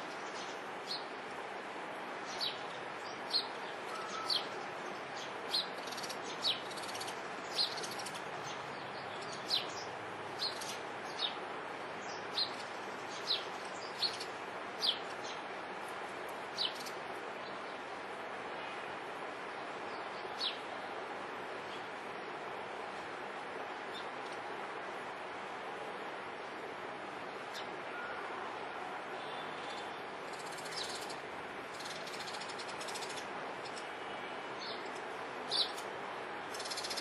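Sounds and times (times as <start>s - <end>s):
background hiss: 0.0s - 37.0s
small bird chirping: 36.5s - 37.0s.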